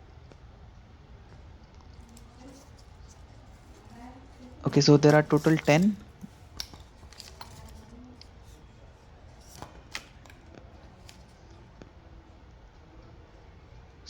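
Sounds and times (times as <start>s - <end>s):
small parts clicking: 2.0s - 8.6s.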